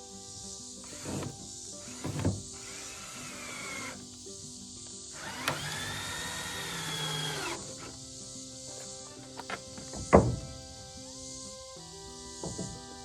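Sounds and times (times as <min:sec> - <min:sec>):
background music: 0:00.0 - 0:13.0
power tool running: 0:00.8 - 0:04.1, 0:05.1 - 0:08.0.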